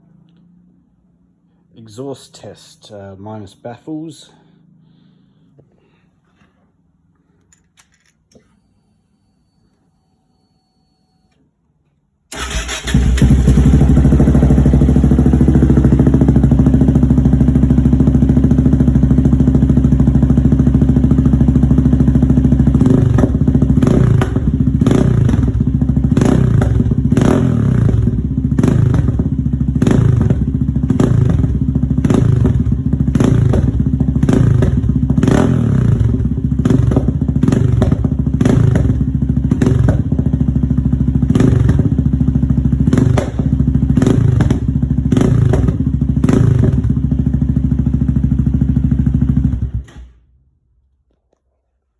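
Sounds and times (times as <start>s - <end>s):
motorcycle engine idling and revving: 12.4s - 50.0s.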